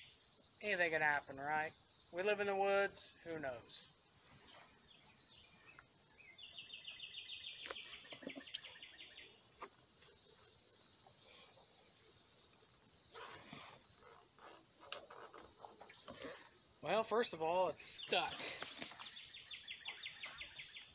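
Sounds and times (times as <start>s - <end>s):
insects trilling: 0.0s - 20.9s.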